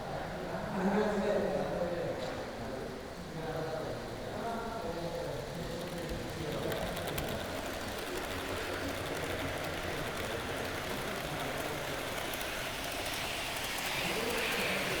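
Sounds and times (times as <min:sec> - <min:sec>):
model train wheels rumbling: 0:03.5 - 0:15.0
faint clicks: 0:05.7 - 0:15.0.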